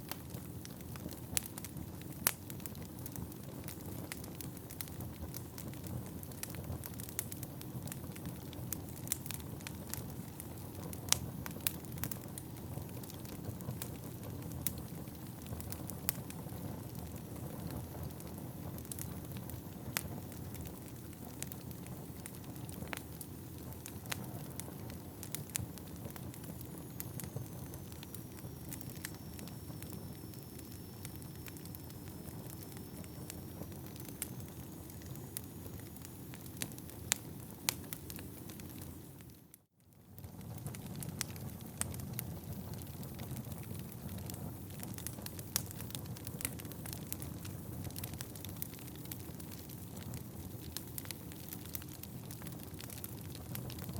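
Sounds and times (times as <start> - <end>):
fire flames rumbling: 0.0 - 39.4, 40.0 - 53.9
logs crackling and popping: 0.0 - 53.9
faint high whistle: 26.7 - 36.4.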